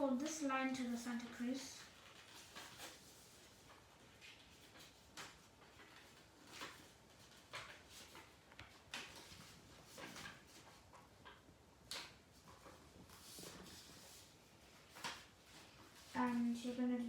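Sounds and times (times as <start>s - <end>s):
paper being folded: 0.0s - 17.0s.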